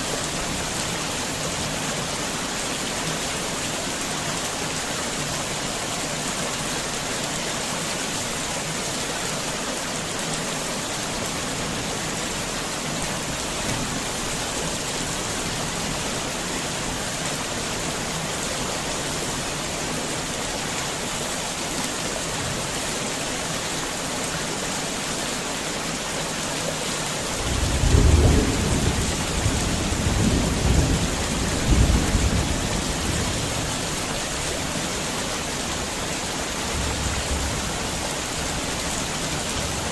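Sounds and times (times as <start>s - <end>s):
heavy rain: 0.0s - 39.9s
thunder rumbling: 27.4s - 33.6s.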